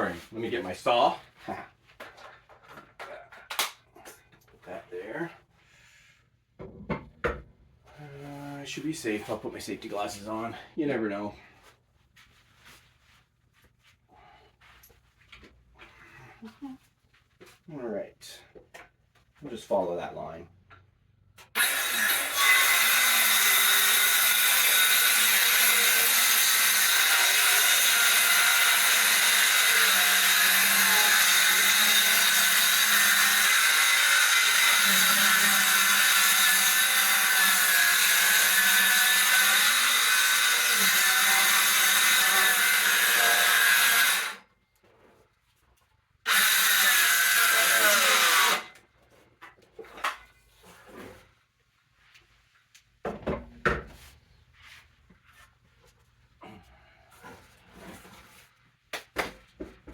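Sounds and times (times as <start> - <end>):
electric saw cutting wood: 21.5 - 44.4, 46.3 - 48.8.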